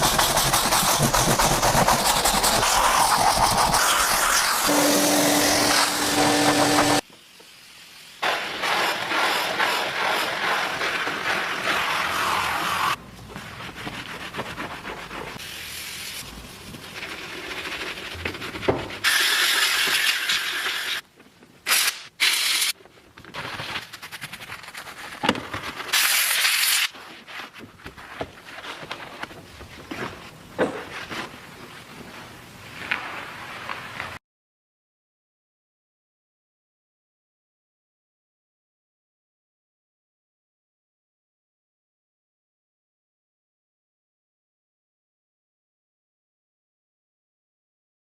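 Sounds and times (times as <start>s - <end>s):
scrubbing and rubbing: 0.0s - 7.0s, 8.6s - 15.4s, 16.6s - 19.1s.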